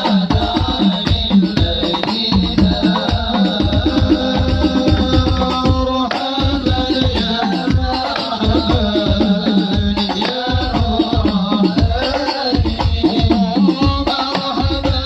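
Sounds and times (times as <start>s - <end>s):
hand drums playing: 0.0s - 15.0s.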